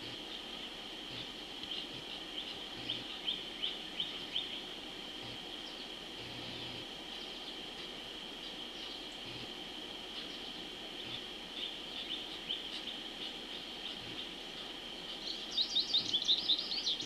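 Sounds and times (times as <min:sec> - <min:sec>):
bird chirping: 0:00.0 - 0:04.7, 0:10.1 - 0:17.0
high outdoor drone: 0:00.0 - 0:17.0.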